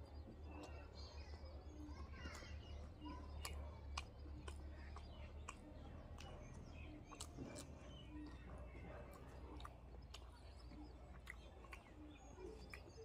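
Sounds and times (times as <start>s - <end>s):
person chewing: 3.4s - 8.5s.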